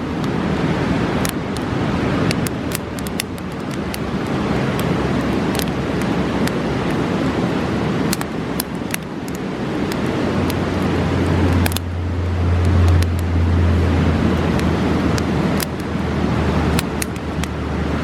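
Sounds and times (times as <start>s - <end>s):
river rushing: 0.0s - 18.0s
campfire crackling and popping: 1.1s - 13.3s, 14.2s - 17.6s.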